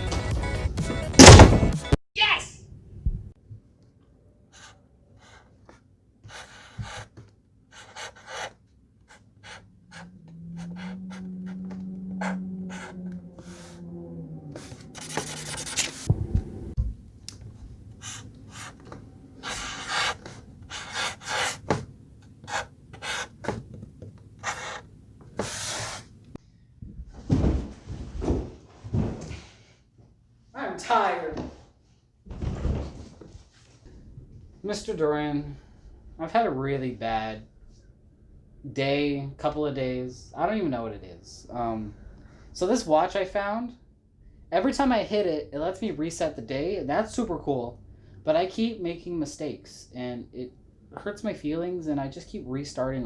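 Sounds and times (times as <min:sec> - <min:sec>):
heavy breathing: 0:09.1 - 0:16.8
person humming: 0:10.2 - 0:15.4.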